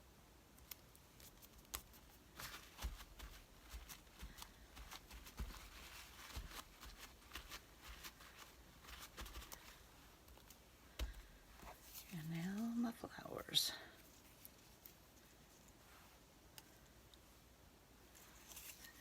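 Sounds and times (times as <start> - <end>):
paper rustling: 1.2 - 12.8, 18.2 - 19.0.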